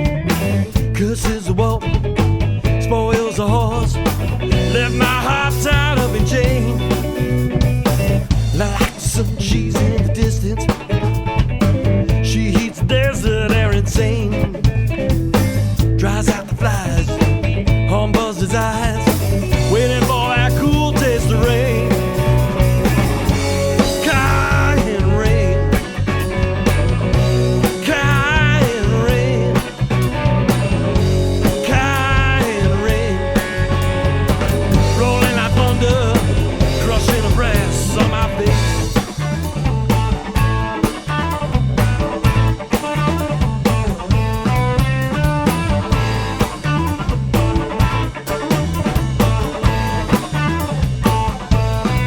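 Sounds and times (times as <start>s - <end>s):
bass guitar: 0.0s - 52.0s
drums: 0.0s - 52.0s
wavering lead melody: 19.5s - 39.2s.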